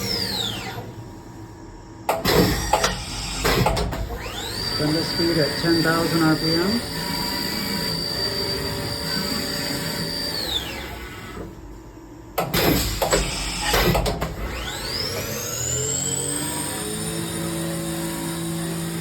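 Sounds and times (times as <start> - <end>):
machine spindle whining: 0.0 - 1.0, 2.2 - 11.6, 13.1 - 19.0
mechanical clunks and clatter: 2.1 - 4.1, 12.4 - 14.4.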